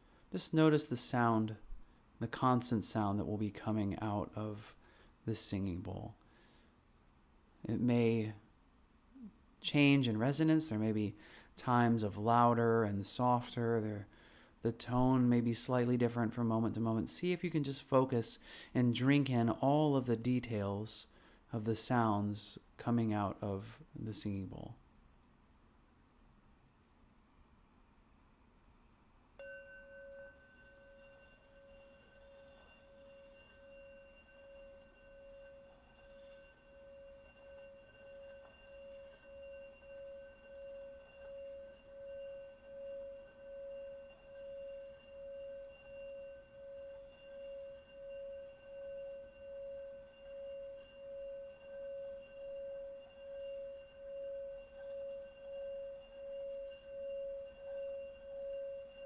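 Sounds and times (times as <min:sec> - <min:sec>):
singing bowl ringing: 0:29.4 - 0:59.0.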